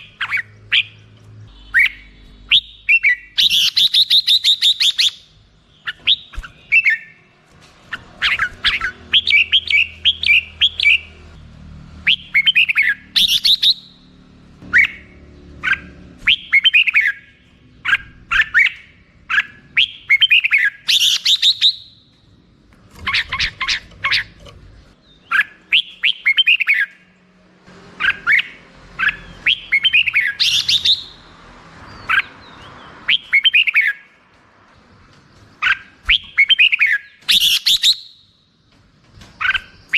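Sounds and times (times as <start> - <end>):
bulbul whistled song: 1.5 - 7.2, 8.2 - 11.1, 12.0 - 14.0, 14.7 - 17.3, 17.9 - 22.1, 28.0 - 31.2, 32.1 - 34.1, 35.6 - 38.4.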